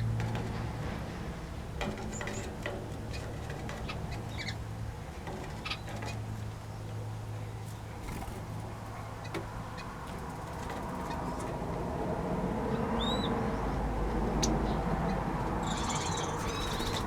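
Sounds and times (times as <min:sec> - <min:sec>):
small birds chirping: 0:12.7 - 0:17.0.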